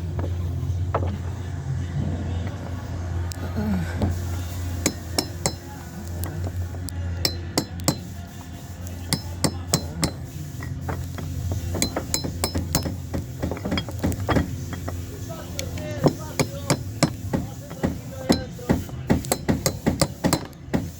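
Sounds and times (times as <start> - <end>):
mallet tapping caulking iron: 4.8 - 6.6, 7.2 - 8.2, 8.9 - 20.9.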